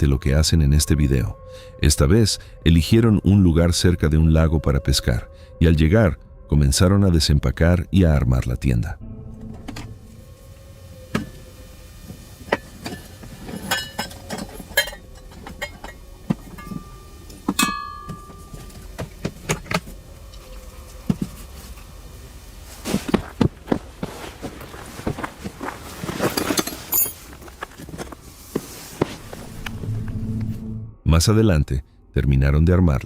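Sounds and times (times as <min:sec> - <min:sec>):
camping gear knocks and rustles: 0:12.6 - 0:20.0, 0:22.7 - 0:29.5.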